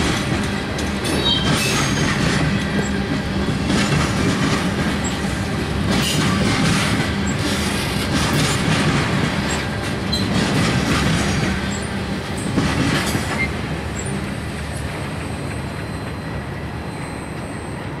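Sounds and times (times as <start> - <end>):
train wheels clattering on rails: 0.0 - 18.0
high wheel squeals: 15.2 - 18.0.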